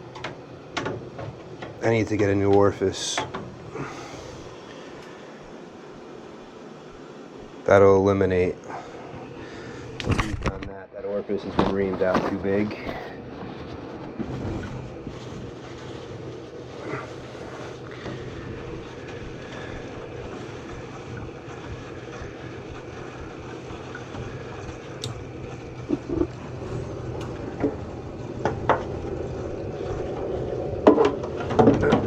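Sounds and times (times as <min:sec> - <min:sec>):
low steady hum: 0:00.0 - 0:32.0
water hissing through orifice: 0:02.0 - 0:06.0, 0:14.0 - 0:32.0.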